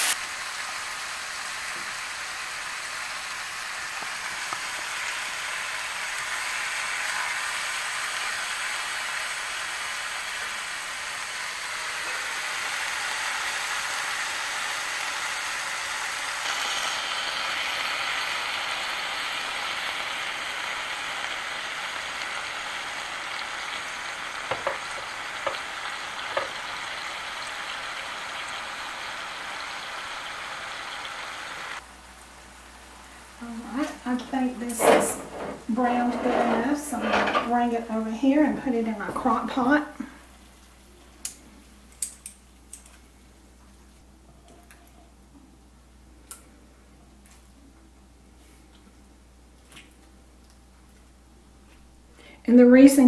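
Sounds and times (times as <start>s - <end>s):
chicken sizzling in hot oil: 0.0s - 37.1s.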